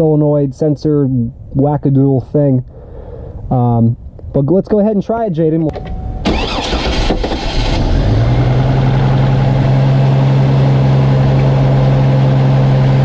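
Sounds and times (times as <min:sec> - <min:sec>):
engine cranking on starter: 0:06.2 - 0:08.7.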